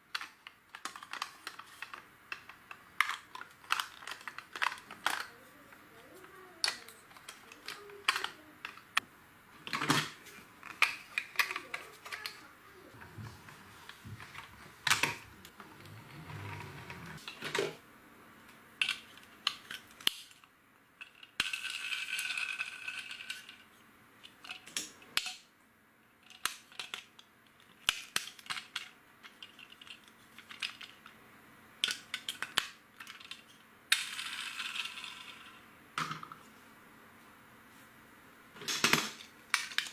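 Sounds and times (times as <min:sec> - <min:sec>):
plastic bricks clicking together: 0:00.1 - 0:05.4, 0:21.0 - 0:23.6, 0:26.2 - 0:31.1, 0:31.8 - 0:36.3, 0:38.6 - 0:39.9.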